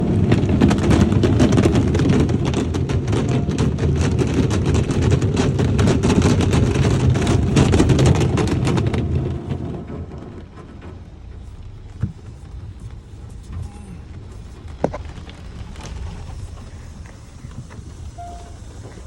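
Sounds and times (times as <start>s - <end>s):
waterfall pouring onto car body: 0.0s - 19.0s.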